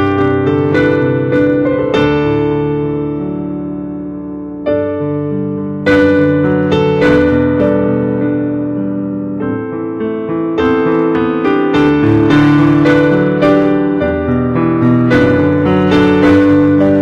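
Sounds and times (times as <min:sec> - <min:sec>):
solo piano music: 0:00.0 - 0:17.0.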